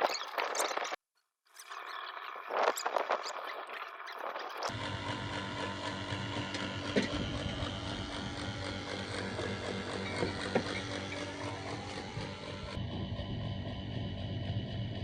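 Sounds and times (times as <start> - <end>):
electric motor humming: 3.1 - 15.0.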